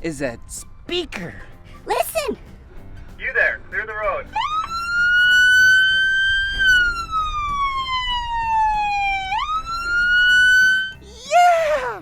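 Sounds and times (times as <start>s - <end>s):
police siren wailing: 4.3s - 11.0s.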